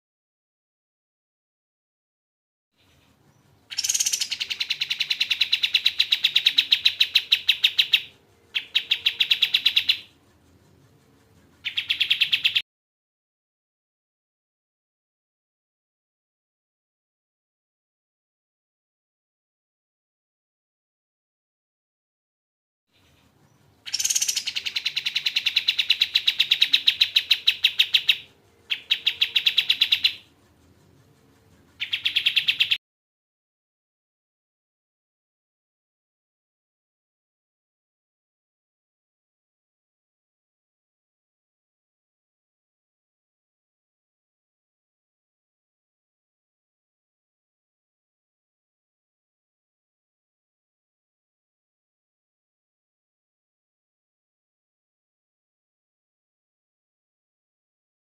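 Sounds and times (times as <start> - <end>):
songbird rapid trills: 2.8 - 12.6, 23.0 - 32.8.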